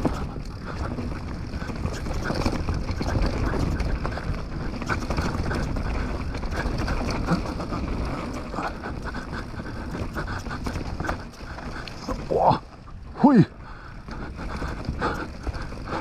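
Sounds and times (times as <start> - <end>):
bike clicks and rattles: 0.0 - 16.0
tyres rumbling over dirt: 0.0 - 16.0.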